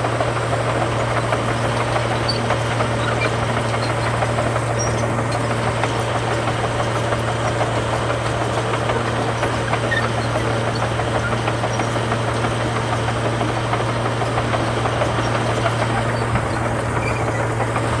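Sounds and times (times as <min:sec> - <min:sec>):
heavy diesel engine running: 0:00.0 - 0:18.0
dense rattling clatter: 0:00.6 - 0:18.0.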